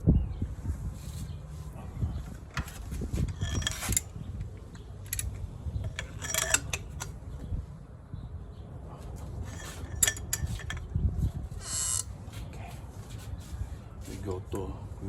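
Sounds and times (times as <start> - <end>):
metallic rasps: 2.6 - 4.2, 5.0 - 7.2, 9.5 - 10.9, 11.5 - 12.2
metal tools clicking: 2.6 - 7.2, 9.5 - 11.0, 11.6 - 12.1.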